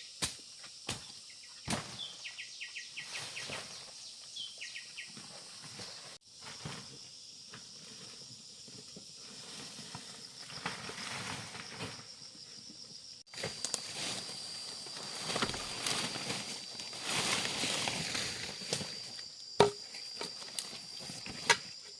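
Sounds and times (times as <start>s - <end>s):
rustling in dry brush and leaves: 13.2s - 21.9s.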